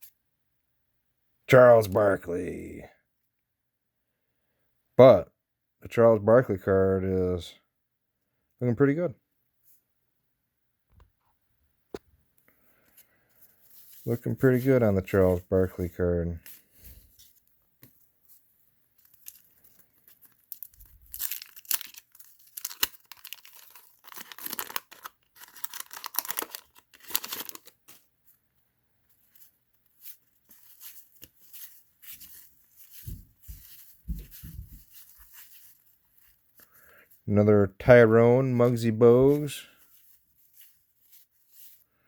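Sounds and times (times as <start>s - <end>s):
trading cards handled: 12.5s - 28.4s, 29.1s - 37.2s, 38.6s - 41.9s
packaging tearing and crumpling: 19.0s - 28.1s.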